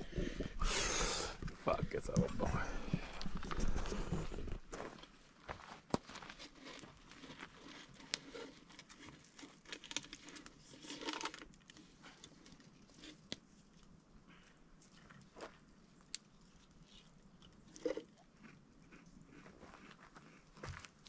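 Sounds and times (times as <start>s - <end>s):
faint rustling and crinkling: 1.3s - 18.1s.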